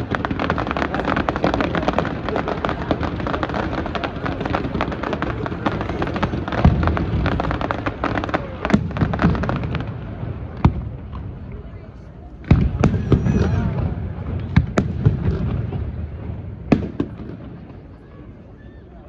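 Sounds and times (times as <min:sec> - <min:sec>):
fireworks booms: 0:00.0 - 0:18.9
fireworks crackling: 0:00.0 - 0:19.0.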